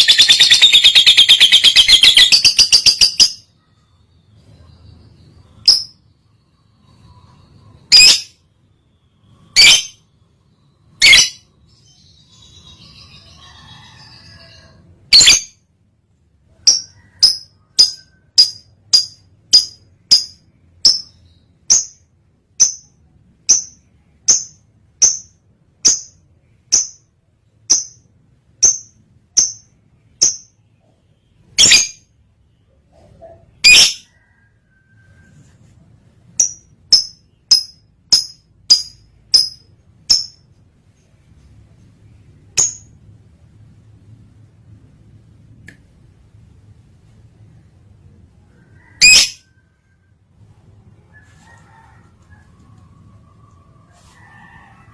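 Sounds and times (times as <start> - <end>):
lovebird chirping: 0.0 - 15.6, 16.5 - 34.8, 36.3 - 40.6.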